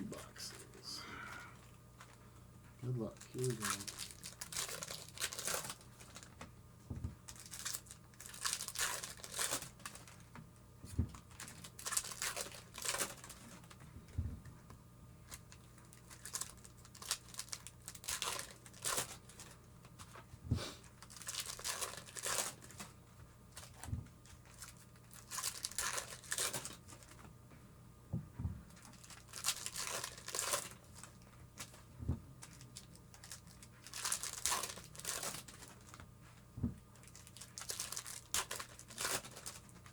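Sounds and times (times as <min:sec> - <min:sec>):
foil wrappers tearing and crinkling: 0:03.0 - 0:06.4, 0:07.3 - 0:10.3, 0:11.2 - 0:13.8, 0:15.3 - 0:20.1, 0:20.9 - 0:22.9, 0:23.5 - 0:27.2, 0:28.8 - 0:31.8, 0:32.4 - 0:36.0, 0:37.0 - 0:39.9
soft low thump: 0:28.1 - 0:28.6.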